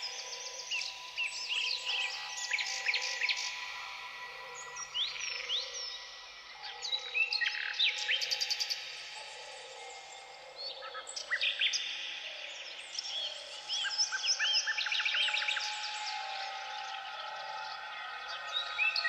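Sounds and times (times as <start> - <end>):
songbirds chirping and trilling: 0.0 - 19.0
soft sustained tones: 14.6 - 19.0.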